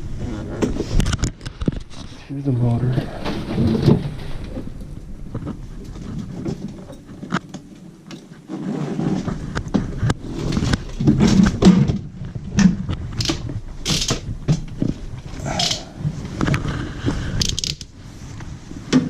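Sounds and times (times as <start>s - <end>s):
tools clicking and knocking: 13.2s - 14.8s, 15.5s - 15.9s, 17.4s - 17.9s.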